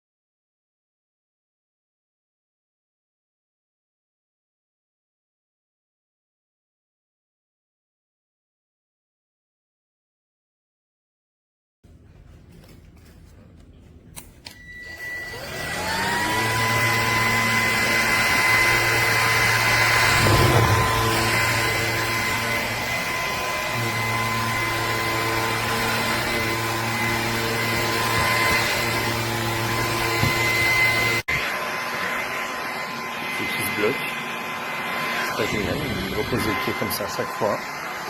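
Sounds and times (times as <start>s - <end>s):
vacuum cleaner motor whine: 14.4s - 38.0s.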